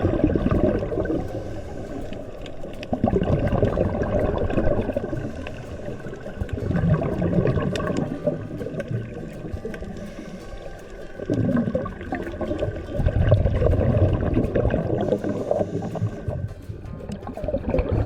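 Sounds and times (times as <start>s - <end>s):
small crackling clicks: 0.0s - 18.0s
underwater bubbling and gurgling: 0.0s - 18.0s.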